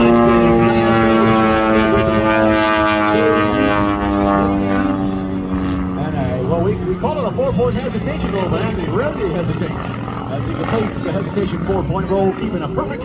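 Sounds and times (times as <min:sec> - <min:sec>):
propeller plane flying past: 0:00.0 - 0:13.0.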